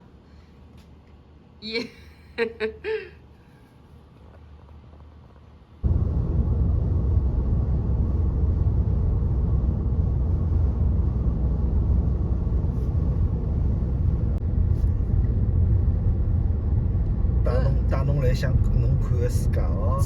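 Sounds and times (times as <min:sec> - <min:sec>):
car road and engine rumble: 0:04.2 - 0:20.0.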